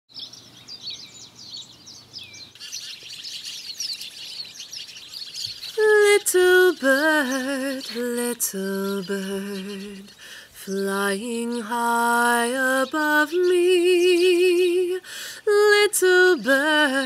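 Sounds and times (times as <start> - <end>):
small birds chirping: 0.1 - 17.0
woman singing: 5.8 - 17.0.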